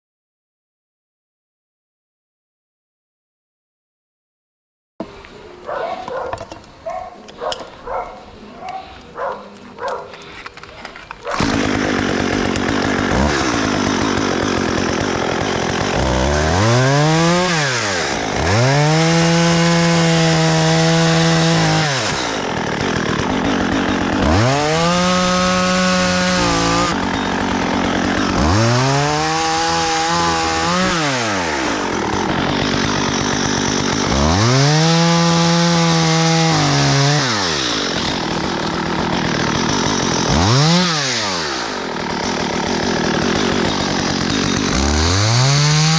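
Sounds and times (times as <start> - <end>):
chainsaw revving: 9.8 - 45.9.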